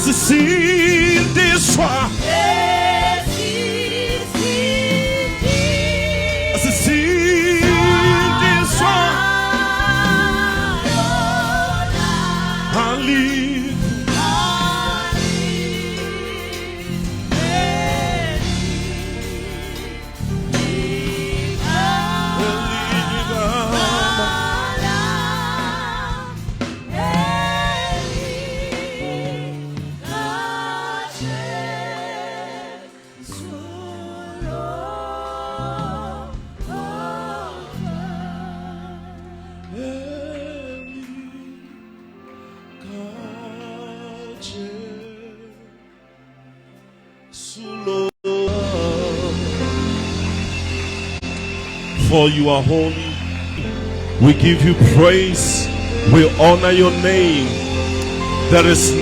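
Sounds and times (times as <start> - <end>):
instrumental backing with bass: 0.0 - 47.2, 47.9 - 59.0
gospel choir singing: 0.0 - 59.0.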